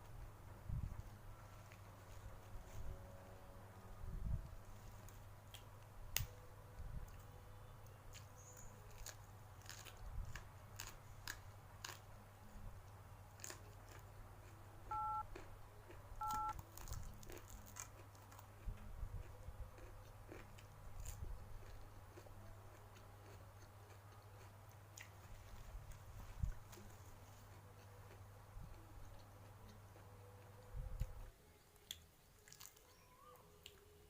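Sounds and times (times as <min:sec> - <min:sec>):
small crunches and clicks: 0:07.1 - 0:12.0, 0:16.2 - 0:25.2
person chewing and biting: 0:08.1 - 0:12.0, 0:13.4 - 0:14.1, 0:14.9 - 0:25.2
short electronic beeps: 0:14.9 - 0:15.3, 0:16.2 - 0:16.6.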